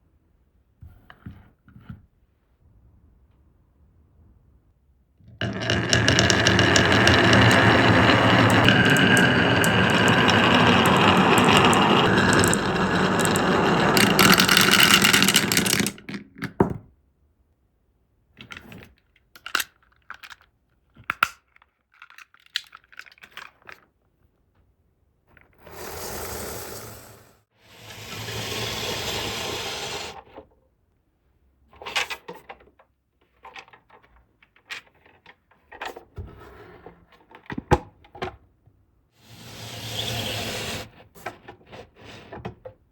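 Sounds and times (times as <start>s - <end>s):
marbles rolling on wooden run: 5.4s - 16.3s
marbles clacking against wood: 5.4s - 16.6s.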